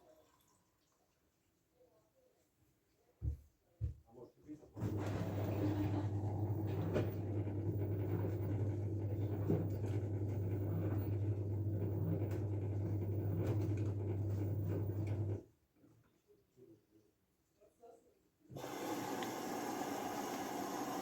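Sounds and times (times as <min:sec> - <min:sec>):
washing machine humming: 0:04.8 - 0:15.4, 0:18.5 - 0:21.0.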